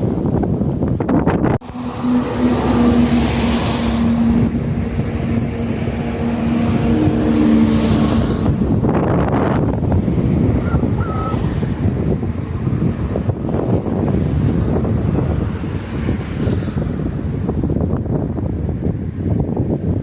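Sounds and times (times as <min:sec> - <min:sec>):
engine humming: 0:00.0 - 0:18.3
wind on microphone: 0:00.0 - 0:20.0
rushing noise: 0:01.0 - 0:19.2.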